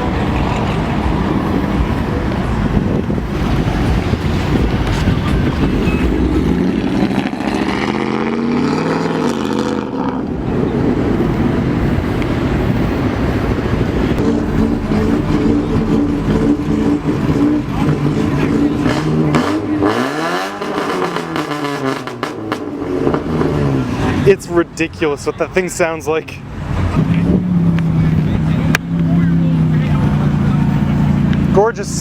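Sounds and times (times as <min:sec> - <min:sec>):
car passing close: 0:00.0 - 0:24.4
car engines rumbling: 0:00.0 - 0:32.0.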